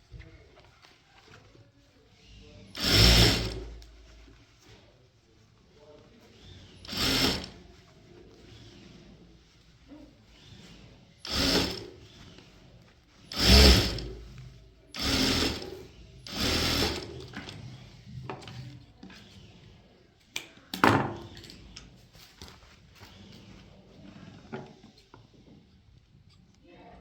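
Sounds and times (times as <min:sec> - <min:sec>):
sewing machine stitching: 0:02.7 - 0:03.9, 0:06.4 - 0:07.6, 0:10.4 - 0:12.4, 0:13.3 - 0:14.3, 0:15.0 - 0:18.6.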